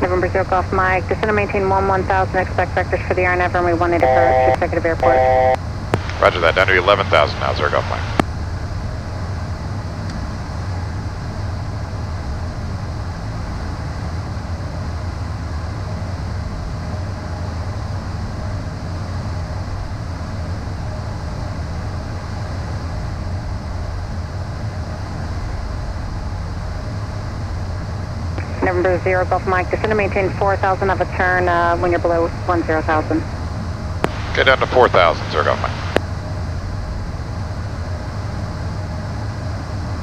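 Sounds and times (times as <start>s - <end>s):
jet cockpit airflow rush: 0.0s - 8.2s, 34.0s - 36.0s.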